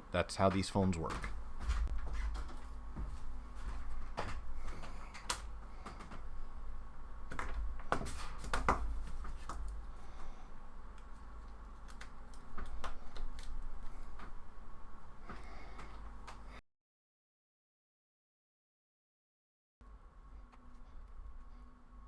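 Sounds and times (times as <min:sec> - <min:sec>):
low hum: 0:19.8 - 0:22.0.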